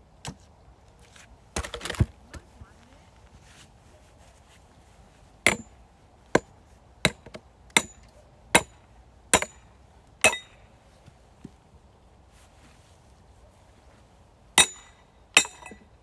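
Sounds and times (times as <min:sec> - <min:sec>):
metal strikes splitting wood: 0:05.5 - 0:05.7, 0:07.1 - 0:08.0, 0:08.6 - 0:08.8, 0:09.4 - 0:09.6, 0:10.2 - 0:10.6, 0:14.6 - 0:15.8.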